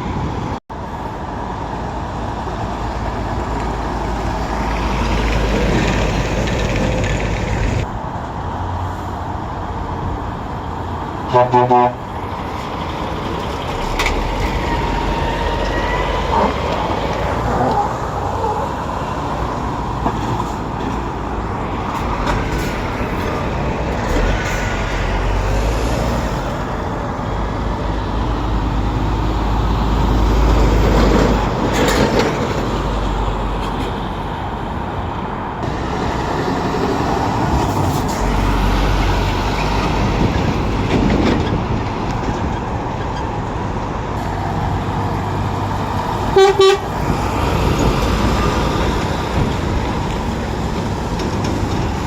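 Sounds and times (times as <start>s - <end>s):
lorry diesel engines: 0.0s - 52.0s
traffic noise: 0.0s - 52.0s.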